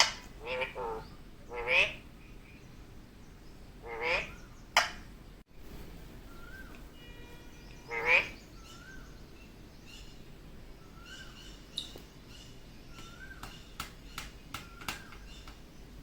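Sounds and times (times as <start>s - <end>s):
parakeet squawk: 0.0s - 2.0s, 3.8s - 4.5s, 7.5s - 9.0s
parakeet soft chirps: 6.3s - 9.1s
sharp clicks: 13.0s - 15.6s.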